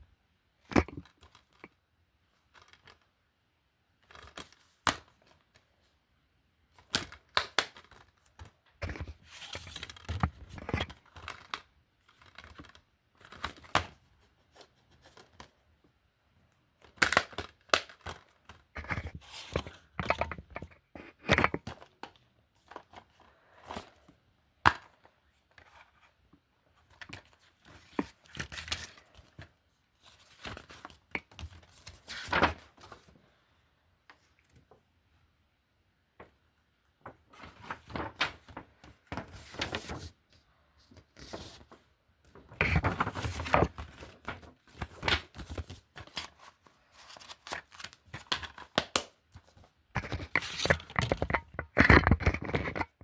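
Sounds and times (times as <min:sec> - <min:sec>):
plastic disc cases clacking: 0:16.8 - 0:24.0, 0:42.4 - 0:53.0.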